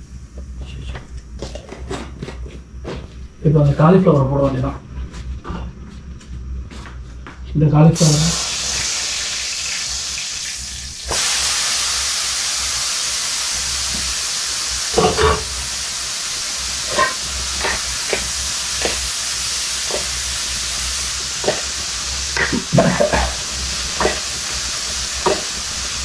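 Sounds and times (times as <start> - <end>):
vegetables sizzling in hot oil: 8.0 - 26.0.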